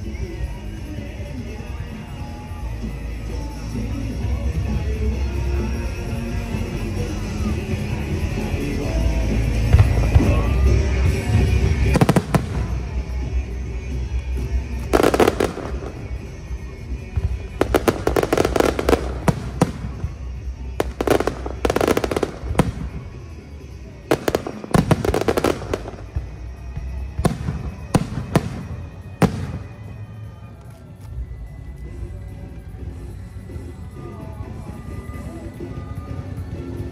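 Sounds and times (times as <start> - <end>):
fireworks crackling pops: 11.8 - 13.1, 14.7 - 16.4, 17.2 - 23.3, 24.1 - 30.0.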